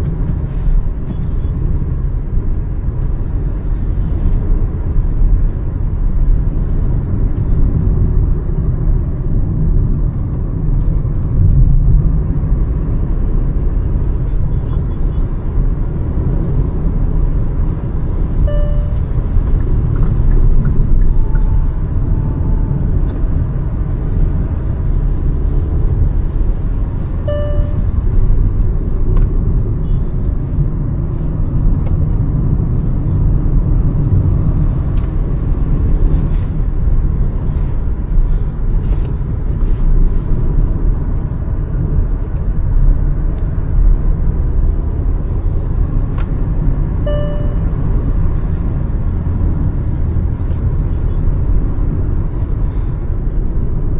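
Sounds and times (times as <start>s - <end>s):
car engine and road rumble: 0.0s - 53.9s
short high beeps: 18.4s - 19.0s, 21.0s - 22.8s, 27.2s - 27.9s, 47.0s - 47.7s.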